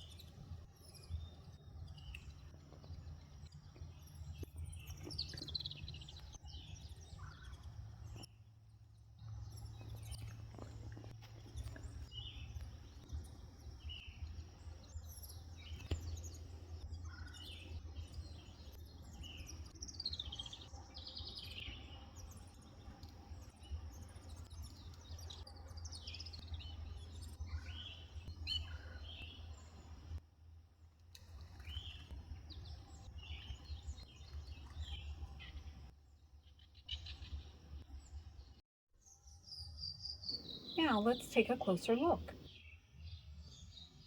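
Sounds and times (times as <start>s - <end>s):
songbirds chirping: 0.0s - 30.2s, 31.1s - 44.0s
low background hum: 40.3s - 42.5s.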